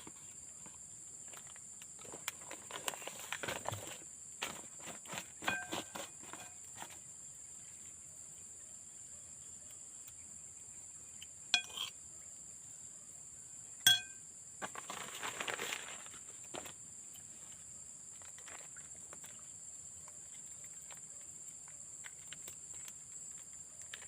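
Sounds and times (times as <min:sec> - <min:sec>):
scraping rustle: 0:02.0 - 0:07.0, 0:14.6 - 0:16.8
utensil clinking against dish: 0:11.6 - 0:11.9, 0:13.9 - 0:14.2.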